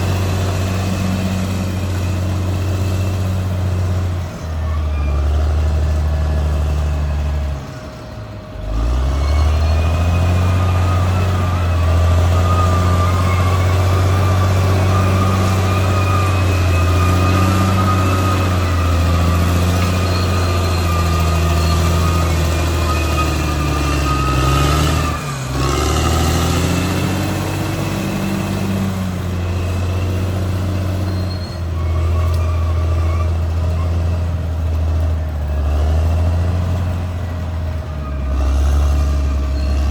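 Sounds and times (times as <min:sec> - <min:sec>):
bulldozer diesel engine under load: 0:00.0 - 0:39.9.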